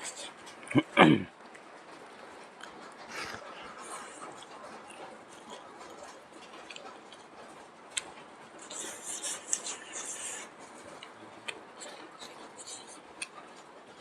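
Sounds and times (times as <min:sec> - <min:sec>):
person chewing: 0:03.1 - 0:07.3, 0:07.9 - 0:13.6.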